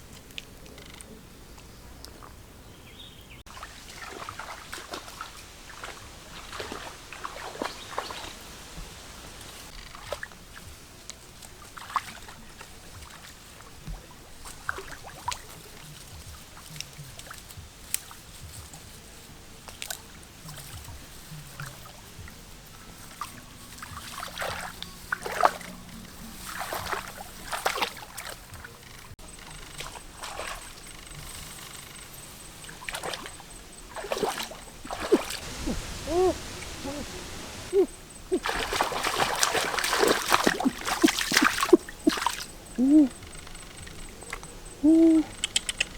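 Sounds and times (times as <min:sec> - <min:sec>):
water splashing and sloshing: 0:03.5 - 0:44.6
bubbling plops: 0:34.0 - 0:43.1.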